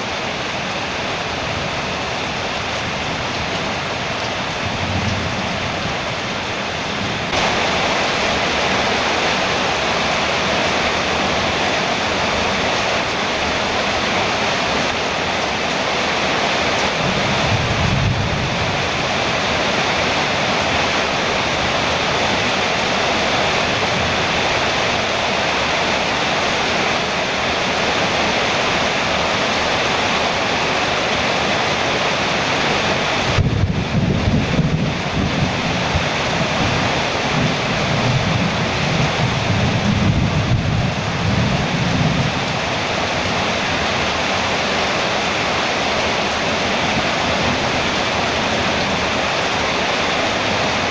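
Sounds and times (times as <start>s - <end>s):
heavy rain on a metal roof: 0.0s - 50.9s
thunder rumbling: 1.4s - 11.6s, 16.8s - 22.4s, 33.2s - 44.1s.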